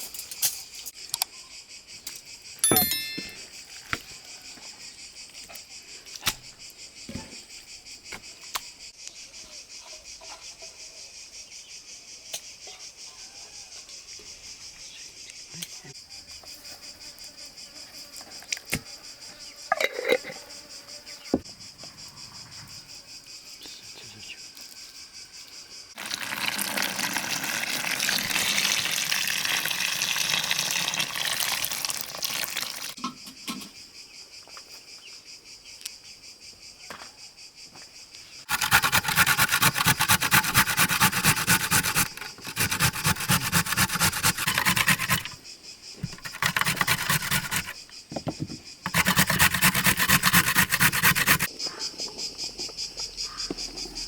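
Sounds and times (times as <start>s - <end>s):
rapid rasping scraping strokes: 38.5s - 45.4s, 46.0s - 47.8s, 48.8s - 51.5s.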